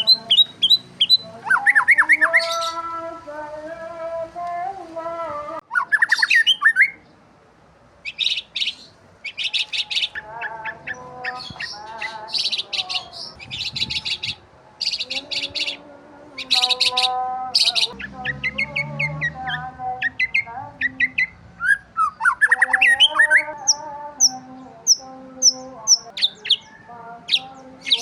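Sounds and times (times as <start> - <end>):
birds chirping: 0.0 - 4.8, 5.6 - 7.3, 8.0 - 28.0.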